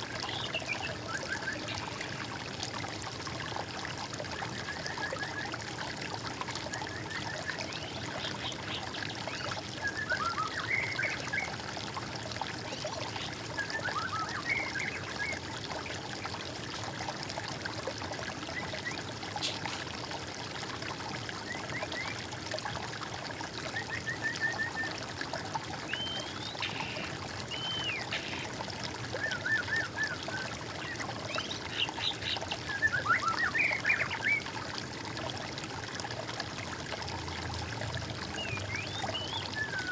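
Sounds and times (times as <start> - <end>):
trickle of running water: 0.0 - 39.9
songbirds singing: 0.1 - 2.2, 6.6 - 11.6, 12.6 - 16.4, 23.7 - 34.5, 38.2 - 39.9.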